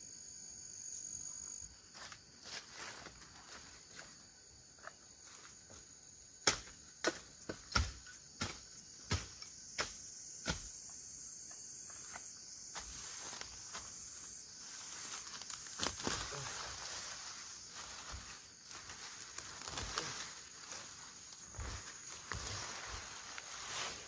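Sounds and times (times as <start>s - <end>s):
high insect drone: 0.0s - 24.0s
sharp knocks of a hand tool: 6.4s - 10.7s
rustling and scraping: 14.6s - 24.0s.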